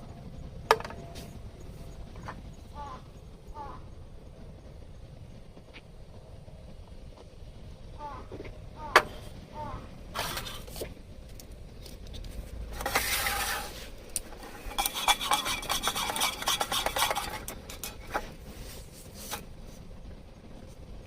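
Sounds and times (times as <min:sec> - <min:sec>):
long scrape: 0:10.1 - 0:10.8, 0:12.7 - 0:19.9.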